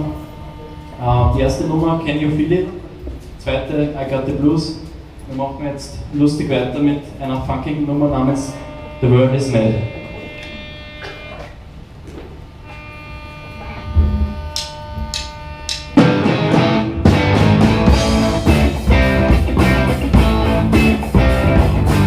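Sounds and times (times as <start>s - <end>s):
live rock band playing funk: 16.0s - 22.0s
low drum hit: 16.0s - 22.0s.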